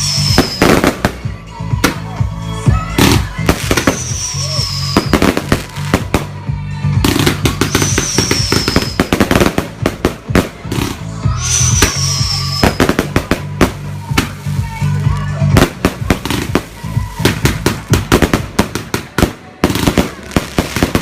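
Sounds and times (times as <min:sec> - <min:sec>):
fireworks bangs and crackles: 0:00.0 - 0:21.0
music with heavy bass line: 0:00.0 - 0:21.0.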